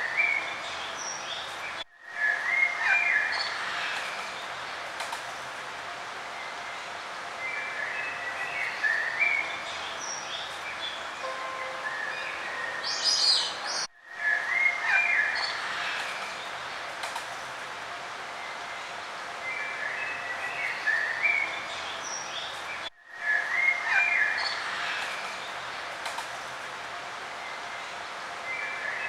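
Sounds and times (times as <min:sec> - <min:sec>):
steady outdoor background hiss: 0:00.0 - 0:29.0
small birds singing and chirping: 0:06.4 - 0:16.6.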